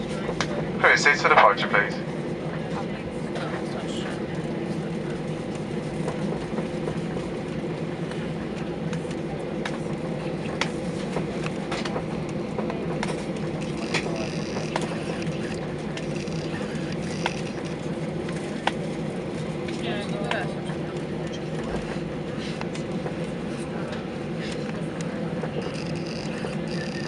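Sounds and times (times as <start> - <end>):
jet engine hum: 0.0 - 27.0
sharp clicks and rattles: 13.0 - 18.8, 25.6 - 27.0.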